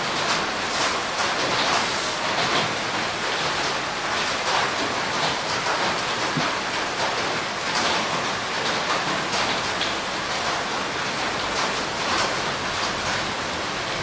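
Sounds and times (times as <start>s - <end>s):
heavy rain hissing: 0.0s - 8.9s
raindrops striking surfaces: 0.0s - 14.0s.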